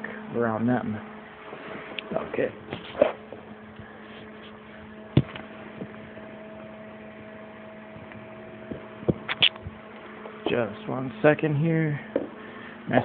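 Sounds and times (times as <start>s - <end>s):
electrical transformer hum: 0.0s - 13.0s
sharp click: 9.2s - 9.7s.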